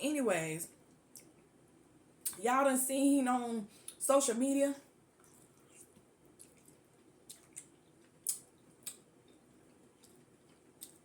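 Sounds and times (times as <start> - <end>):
chewing with wet mouth smacks: 5.2 - 11.0
sharp mouth clicks: 5.7 - 9.0.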